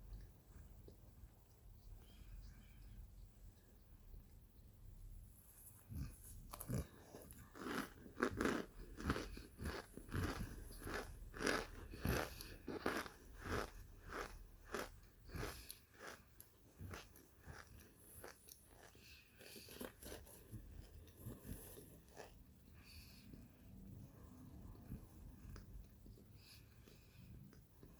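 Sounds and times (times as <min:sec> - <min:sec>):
crisp chewing crunches: 0:05.8 - 0:23.2.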